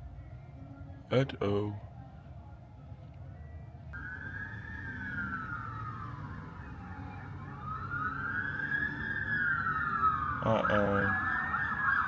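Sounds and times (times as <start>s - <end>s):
low traffic rumble: 0.0s - 12.0s
emergency siren wailing: 4.0s - 12.0s.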